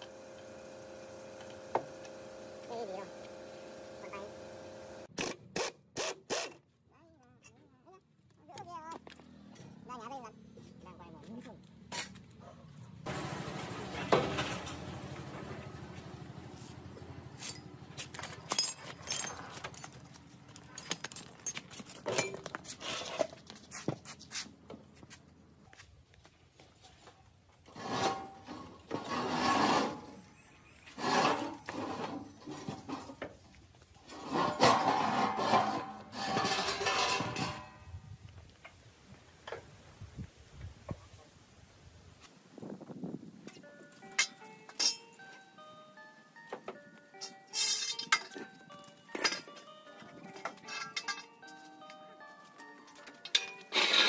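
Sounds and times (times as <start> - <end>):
metal tools clinking: 17.3 - 23.5, 34.0 - 37.8, 43.4 - 45.5, 47.1 - 54.0
metal scraping: 27.7 - 37.9, 53.2 - 54.0.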